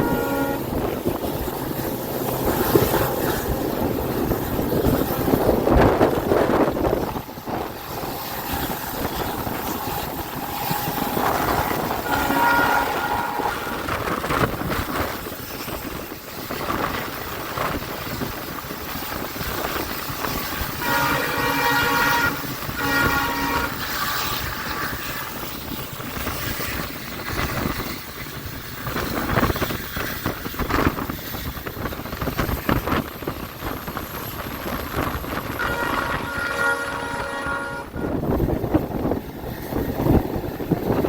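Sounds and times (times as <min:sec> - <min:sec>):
diesel locomotive horn: 0:00.0 - 0:00.9, 0:11.2 - 0:14.4, 0:20.7 - 0:25.5, 0:35.5 - 0:38.4
train rolling noise: 0:00.0 - 0:41.0.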